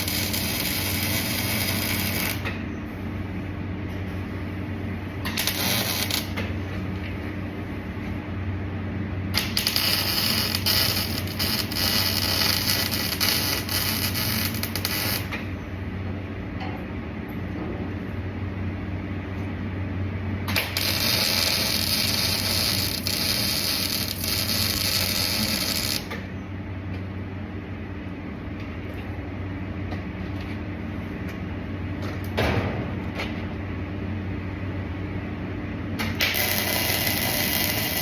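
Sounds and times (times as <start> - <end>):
welding arc crackling: 0.0 - 2.5, 5.3 - 6.4, 9.3 - 15.4, 20.5 - 26.2, 36.0 - 38.0
low machine hum: 0.0 - 38.0.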